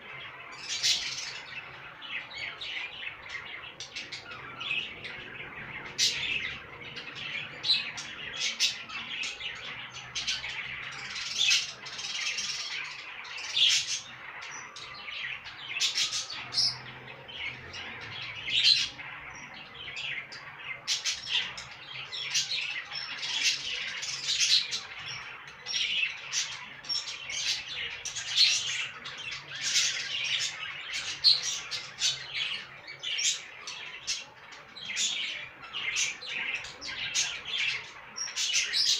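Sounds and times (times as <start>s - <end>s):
budgerigars chirping: 0.0s - 38.9s.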